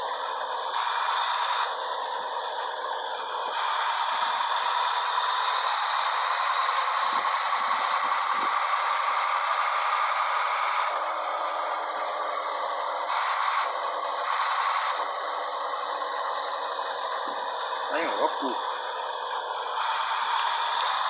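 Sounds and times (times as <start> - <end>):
truck diesel engine: 0.0 - 21.0.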